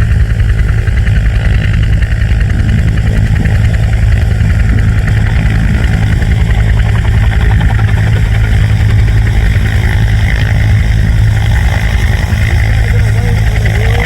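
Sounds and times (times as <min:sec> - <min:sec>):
helicopter turbine and rotor drone: 0:00.0 - 0:14.0.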